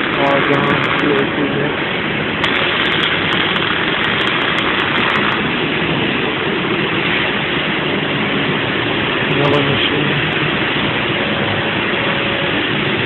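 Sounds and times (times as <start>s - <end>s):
welding arc crackling: 0.0s - 1.8s, 2.4s - 6.0s.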